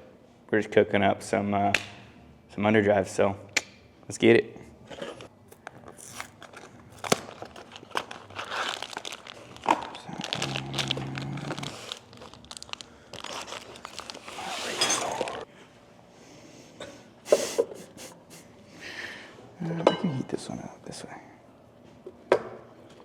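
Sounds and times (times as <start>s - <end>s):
crinkling and rustling: 5.0s - 15.4s.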